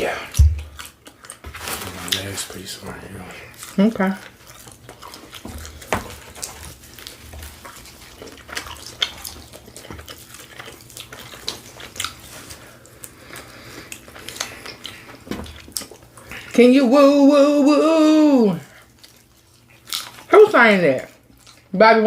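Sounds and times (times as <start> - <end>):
person chewing food: 0.0 - 16.6, 18.6 - 20.3, 21.0 - 21.7.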